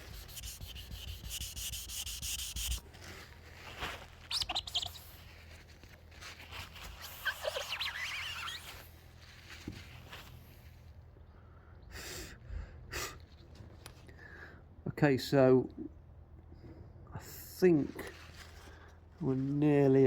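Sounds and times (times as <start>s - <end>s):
small birds chirping: 4.3s - 5.2s.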